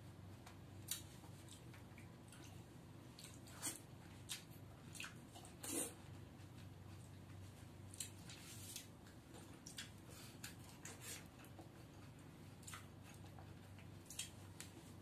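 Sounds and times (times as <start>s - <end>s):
low steady hum: 0.0s - 15.0s
man chewing and sucking: 9.5s - 14.6s.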